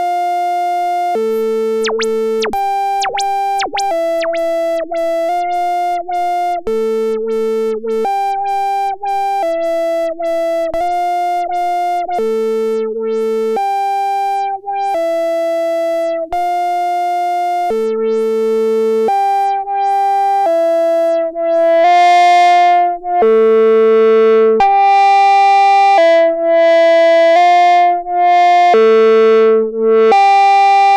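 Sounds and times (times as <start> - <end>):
analog synthesizer notes: 0.2 - 16.6.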